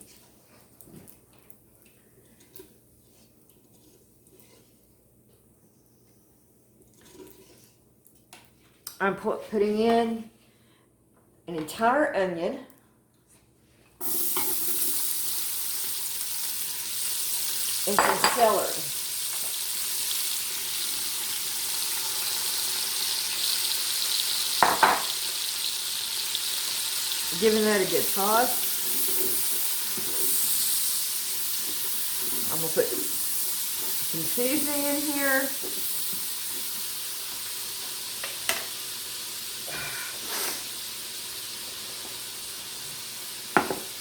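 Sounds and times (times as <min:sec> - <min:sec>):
vegetables sizzling in oil: 0:14.0 - 0:44.0.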